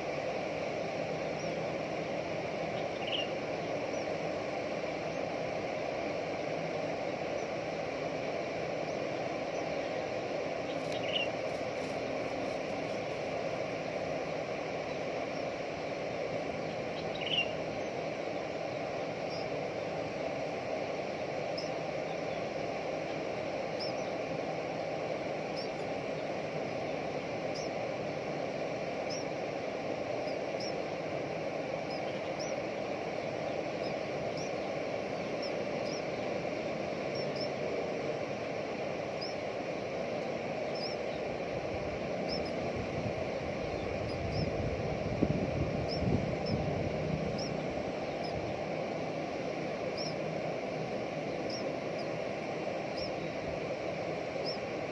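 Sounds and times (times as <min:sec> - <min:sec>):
outdoor background noise: 0:00.0 - 0:54.9
high bird chirps: 0:02.8 - 0:04.1, 0:10.7 - 0:11.4, 0:17.0 - 0:18.0.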